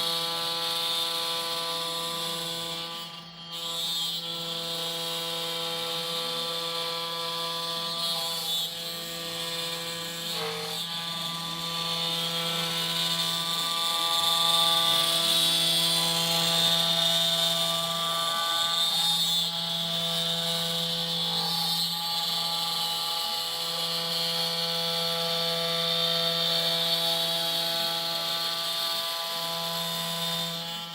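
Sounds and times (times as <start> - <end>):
cnc router whine: 0.0 - 30.9
motor tones rising and falling: 10.3 - 10.9.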